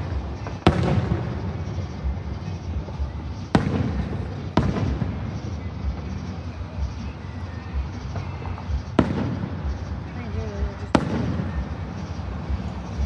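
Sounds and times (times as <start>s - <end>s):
fireworks booming: 0.0s - 13.0s.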